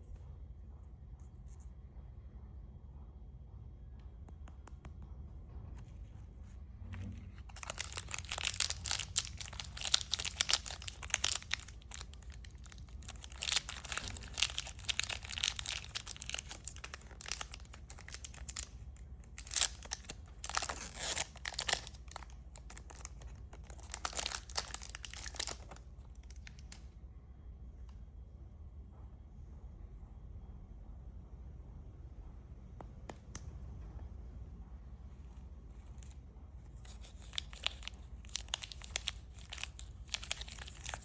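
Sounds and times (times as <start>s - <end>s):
plastic wrappers crinkling and tearing: 7.1s - 26.8s, 36.8s - 41.0s.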